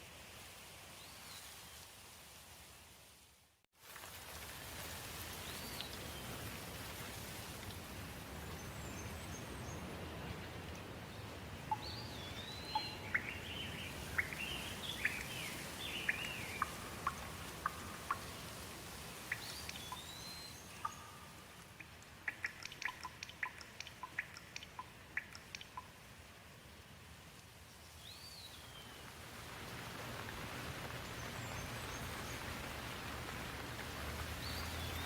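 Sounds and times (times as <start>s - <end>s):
light rain: 0.0s - 35.0s
quick dripping ticks: 11.7s - 18.4s, 19.2s - 20.1s, 20.8s - 26.0s.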